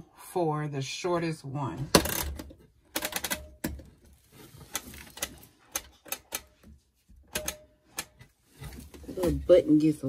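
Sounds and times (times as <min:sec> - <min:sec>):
washing machine control clicks: 0:07.3 - 0:08.2.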